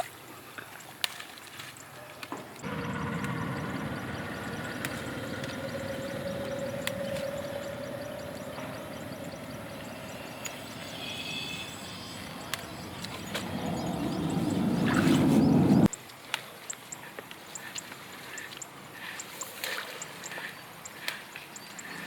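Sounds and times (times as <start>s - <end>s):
vehicle engine rumbling: 2.6s - 15.9s.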